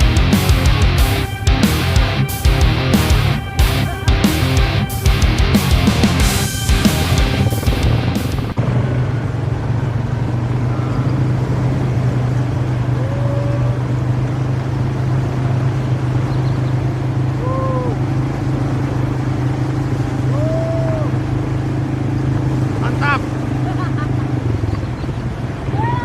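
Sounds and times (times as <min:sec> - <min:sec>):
short rising-and-falling tones: 0:00.0 - 0:08.6
vehicle engine running steadily: 0:00.0 - 0:26.0.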